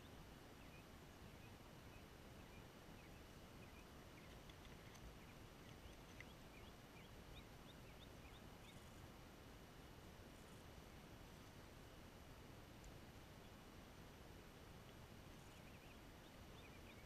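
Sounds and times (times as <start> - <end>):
birds chirping: 0.0 - 9.1, 14.8 - 17.0
faint steady hiss: 0.0 - 17.0.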